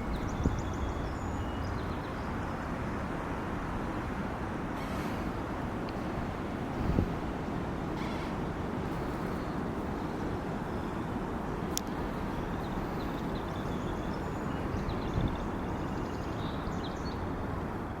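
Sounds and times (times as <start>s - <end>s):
wind buffeting microphone: 0.0s - 18.0s
click: 11.7s - 11.9s.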